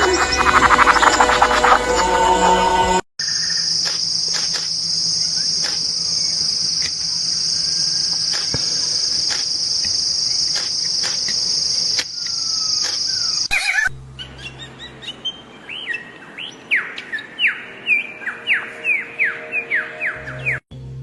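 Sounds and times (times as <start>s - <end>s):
insect trilling: 3.2s - 13.9s
bird chirps: 3.2s - 20.6s.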